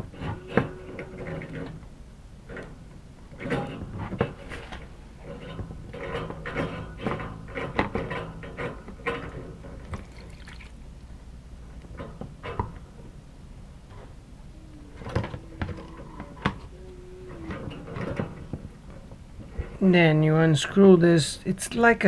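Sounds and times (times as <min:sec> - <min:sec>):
water running into container: 0:09.8 - 0:10.8.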